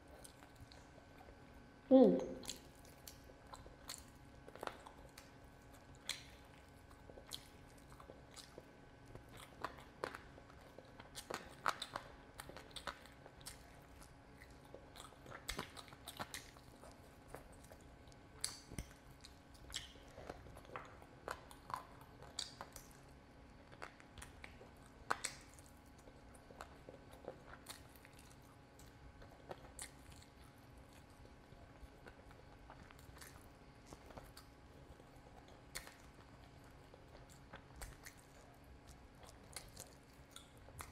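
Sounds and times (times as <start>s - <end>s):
close chewing and biting: 0.0s - 1.4s, 2.4s - 40.9s.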